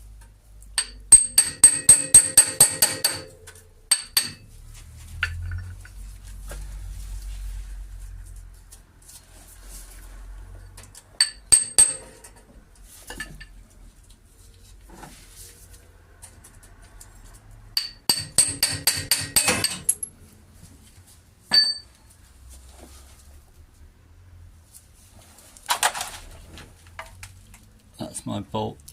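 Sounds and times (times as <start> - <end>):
metal hand tools clinking: 11.2 - 12.4, 17.8 - 20.1.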